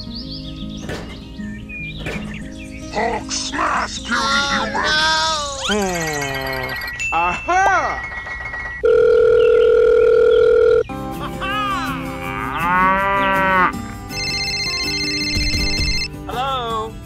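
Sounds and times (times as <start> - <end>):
electronic phone tone: 8.0 - 10.9, 14.2 - 16.1
cow mooing: 11.9 - 13.8.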